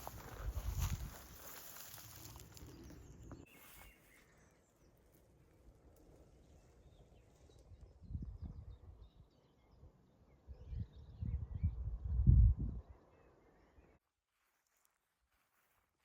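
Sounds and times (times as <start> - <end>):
footsteps rustling through bracken: 0.0 - 3.0
faint bird chirps: 1.8 - 5.2.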